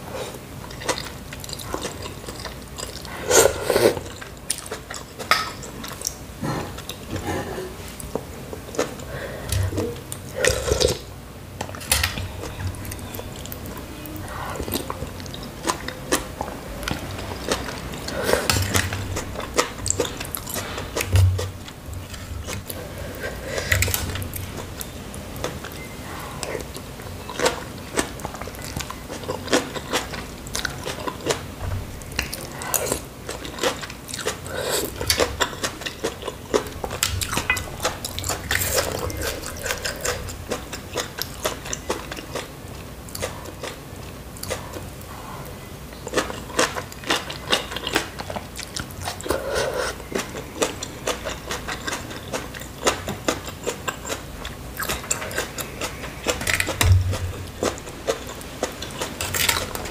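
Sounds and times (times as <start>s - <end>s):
person chewing noodles: 0.0s - 11.1s, 11.7s - 59.9s.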